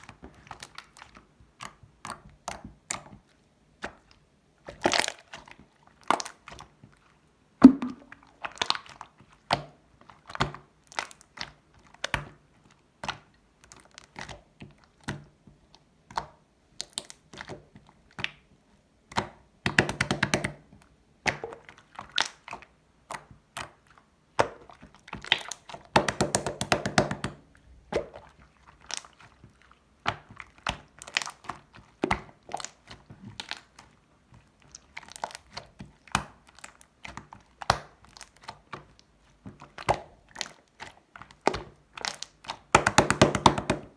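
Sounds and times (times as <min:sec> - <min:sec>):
slime popping and clicking: 0:07.6 - 0:08.2, 0:42.8 - 0:43.9.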